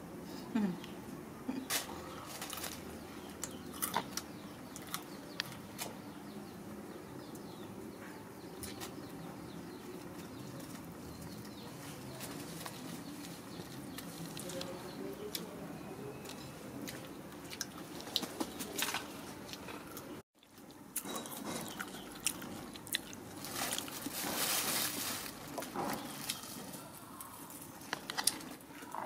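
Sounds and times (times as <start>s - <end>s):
mango being chewed: 16.2s - 24.0s.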